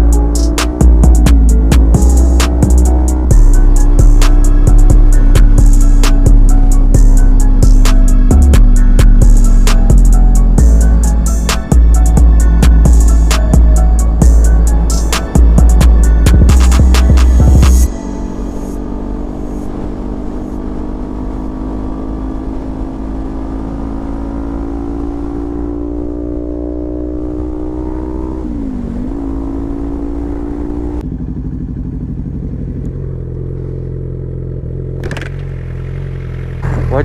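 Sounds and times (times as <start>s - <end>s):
motorcycle engine revving: 0.0s - 37.0s
motorcycle engine idling: 31.0s - 37.0s.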